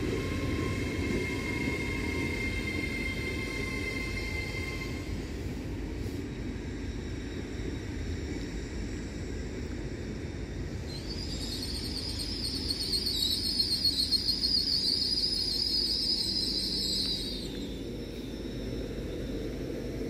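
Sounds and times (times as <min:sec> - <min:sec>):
train wheels rumbling: 0:00.0 - 0:20.0
high-pitched wheel squeal: 0:00.1 - 0:05.2, 0:10.9 - 0:19.4.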